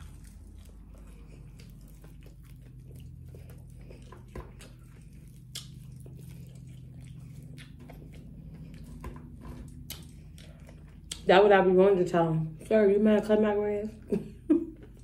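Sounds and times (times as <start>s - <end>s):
chewing and biting food: 0.0s - 11.4s, 14.7s - 15.0s.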